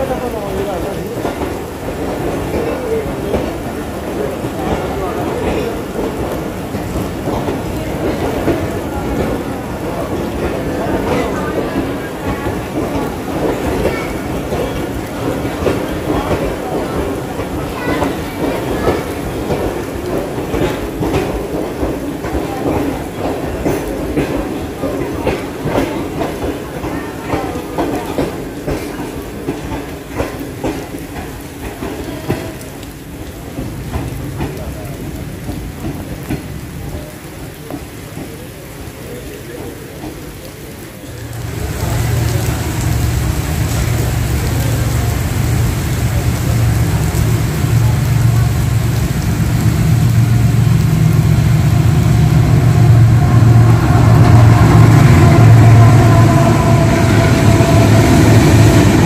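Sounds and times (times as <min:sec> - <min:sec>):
steady rain: 0:00.0 - 0:59.0
diesel locomotive engine rumble: 0:39.5 - 0:59.0.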